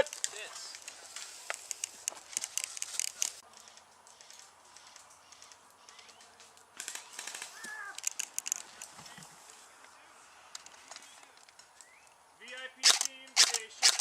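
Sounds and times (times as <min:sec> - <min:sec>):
airsoft guns firing bursts: 0:12.8 - 0:14.0.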